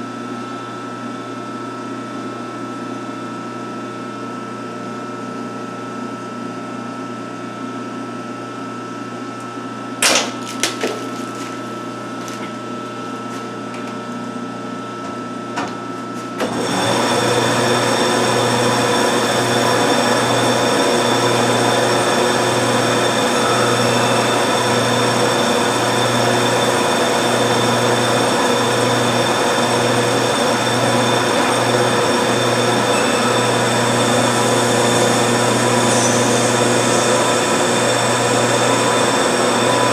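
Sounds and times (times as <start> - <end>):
lathe running with hum: 9.4 - 39.9.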